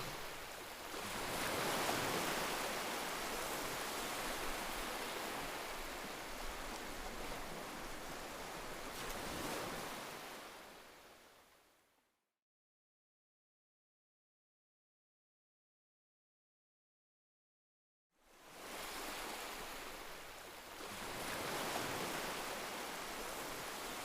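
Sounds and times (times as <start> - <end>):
waves breaking on a beach: 0.0 - 11.8, 18.2 - 24.0.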